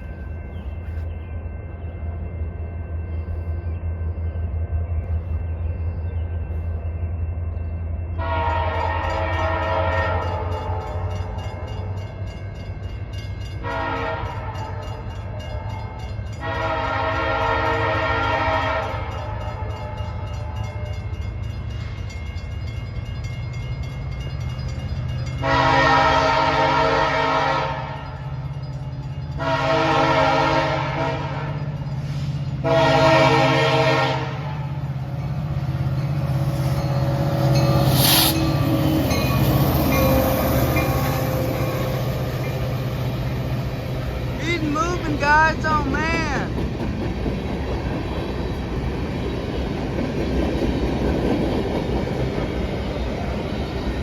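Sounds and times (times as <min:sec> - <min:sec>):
locomotive air horn blasts: 0:08.2 - 0:10.9, 0:13.6 - 0:14.5, 0:16.4 - 0:19.1, 0:25.4 - 0:28.0, 0:29.4 - 0:31.6, 0:32.6 - 0:34.6.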